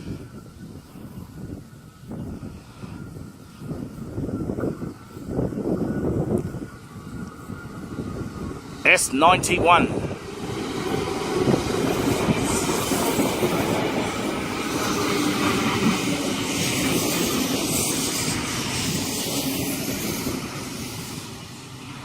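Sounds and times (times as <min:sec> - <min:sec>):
train rumbling: 0:05.6 - 0:22.0.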